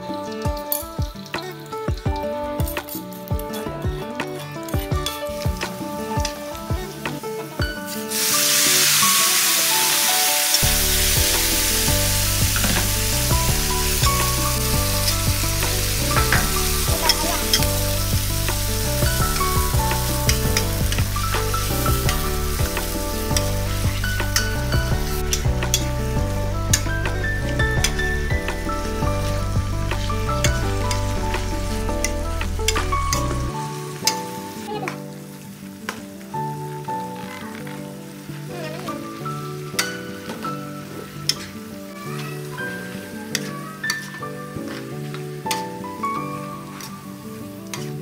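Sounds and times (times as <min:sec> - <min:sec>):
background music with bass: 0:00.0 - 0:35.0
garlic and onion sizzling in oil: 0:02.9 - 0:48.0.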